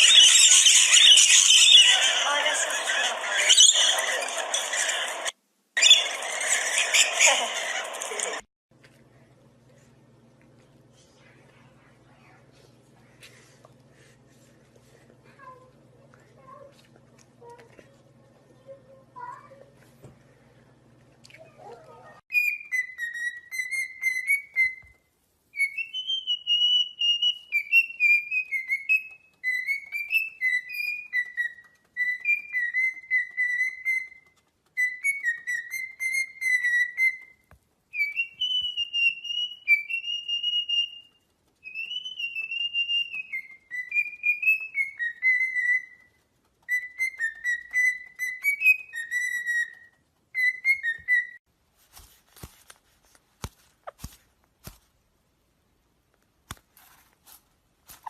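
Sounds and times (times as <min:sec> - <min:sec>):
parrot whistling a tune: 0:00.0 - 0:02.6, 0:22.3 - 0:24.9, 0:25.5 - 0:46.1, 0:46.7 - 0:51.4.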